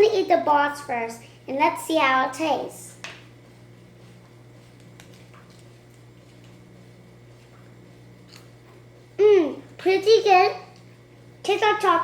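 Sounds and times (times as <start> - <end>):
steady low hum: 0.0 - 12.0
child chewing candy: 4.6 - 6.6.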